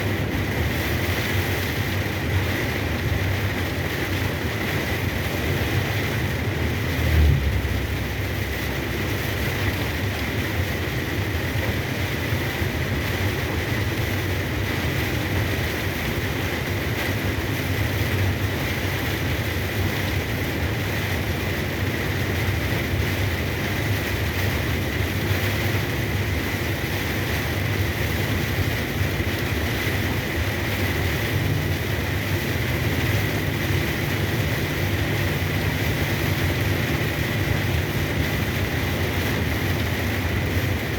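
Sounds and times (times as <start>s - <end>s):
rain and spray hissing: 0.0s - 40.9s
road noise: 0.0s - 40.9s
truck engine drone: 4.2s - 11.9s.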